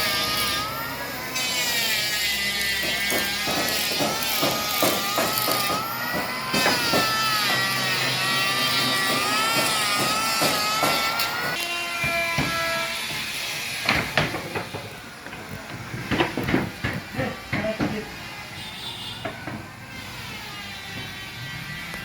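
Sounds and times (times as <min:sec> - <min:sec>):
carpentry knocks and clacks: 0:02.7 - 0:18.1, 0:19.2 - 0:19.7.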